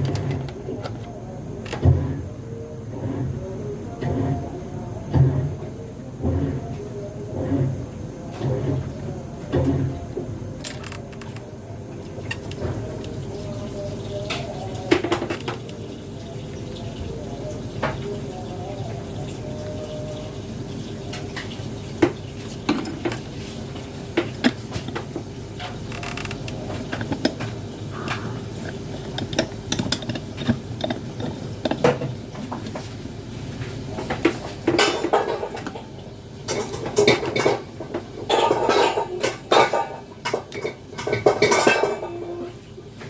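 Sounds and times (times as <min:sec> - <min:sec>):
small parts and tools clinking: 0:10.6 - 0:11.4, 0:28.6 - 0:32.7.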